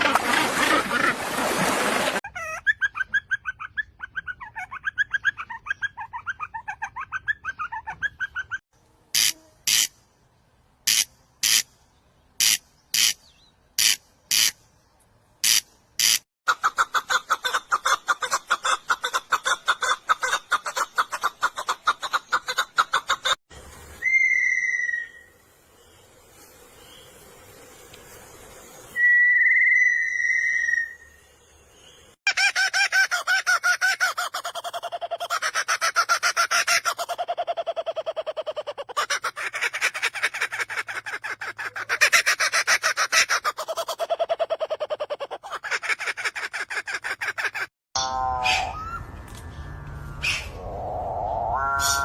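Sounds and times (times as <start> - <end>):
bird gliding whistles: 24.0 - 25.4, 28.9 - 31.3, 48.3 - 52.0.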